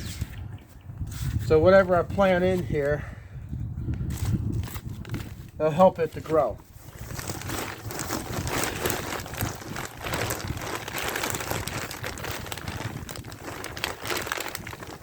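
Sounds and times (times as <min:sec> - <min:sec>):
potting soil rustling: 0:04.2 - 0:15.0.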